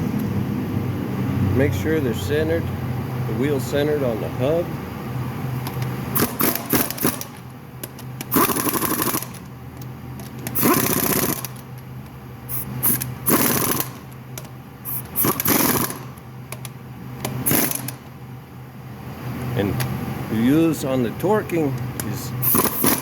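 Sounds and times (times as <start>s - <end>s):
impact wrench hammering: 6.2s - 9.4s, 10.4s - 11.6s, 12.5s - 18.1s, 22.4s - 23.0s.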